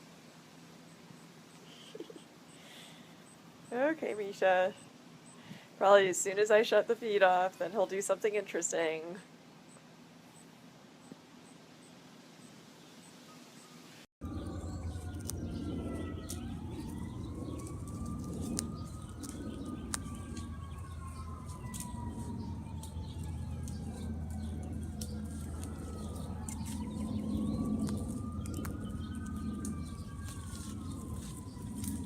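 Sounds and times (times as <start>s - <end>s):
distant siren wailing: 14.2s - 32.0s
low rumble: 14.2s - 32.0s.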